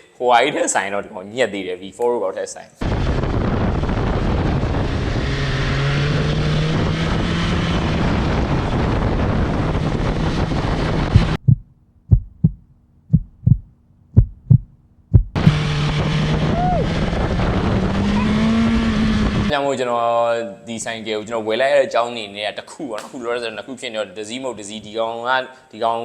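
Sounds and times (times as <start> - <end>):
wind rush: 2.8 - 12.6, 15.3 - 19.5
motorcycle engine running: 3.8 - 12.4, 15.2 - 19.5
sharp thumps: 11.0 - 16.2.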